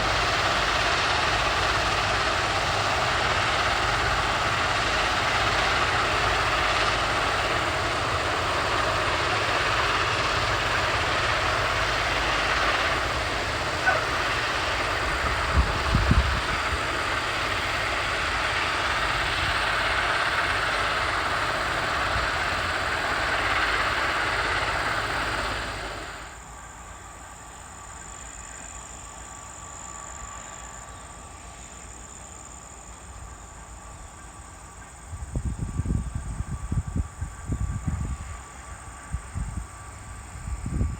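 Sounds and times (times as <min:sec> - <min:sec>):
heavy machinery roaring: 0:00.0 - 0:26.4.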